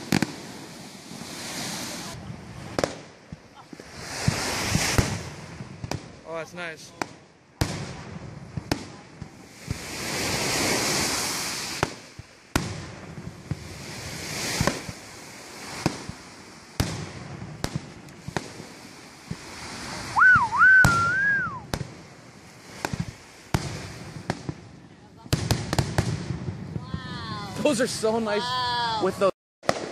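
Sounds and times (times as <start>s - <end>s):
firework hiss: 0.0s - 29.9s
fireworks bangs and cracks: 0.0s - 29.9s
firework whistle: 19.6s - 21.8s.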